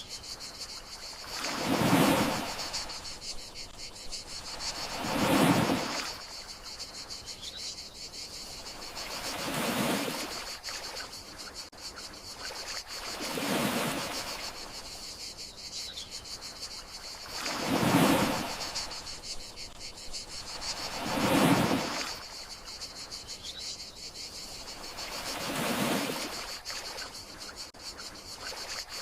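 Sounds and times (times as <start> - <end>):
crickets chirring: 0.0 - 29.0
sea waves washing ashore: 0.6 - 7.0, 8.5 - 11.7, 12.4 - 15.0, 16.8 - 22.9, 24.6 - 27.6.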